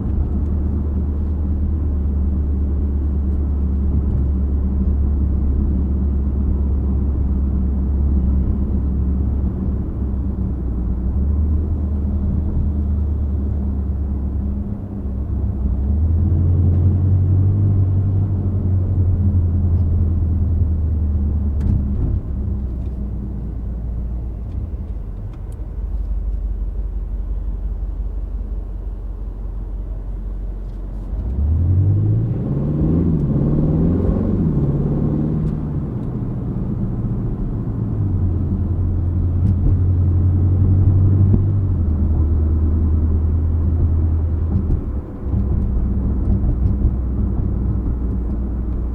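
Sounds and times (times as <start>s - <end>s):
car engine revving and accelerating: 0.0s - 23.5s, 30.6s - 48.9s.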